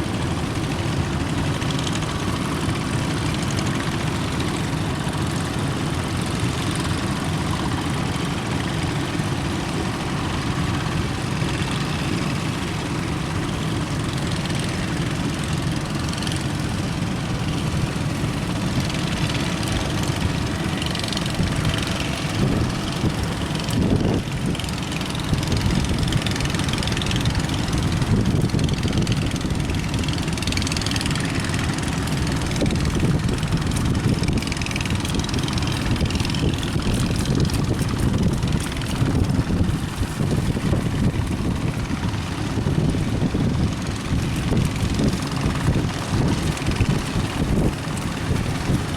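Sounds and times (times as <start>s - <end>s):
boat engine rumbling: 0.0s - 48.9s
waves: 0.0s - 48.9s
wind on microphone: 16.1s - 48.9s.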